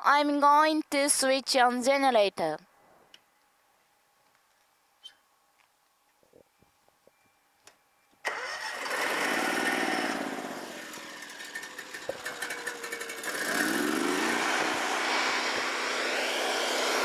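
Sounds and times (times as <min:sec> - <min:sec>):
generator engine running: 0:08.3 - 0:17.0.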